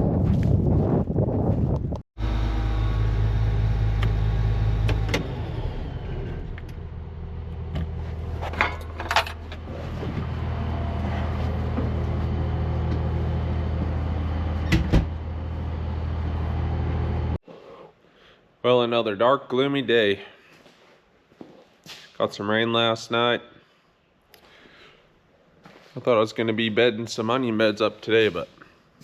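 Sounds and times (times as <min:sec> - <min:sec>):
vehicle engine humming: 0:02.2 - 0:17.4.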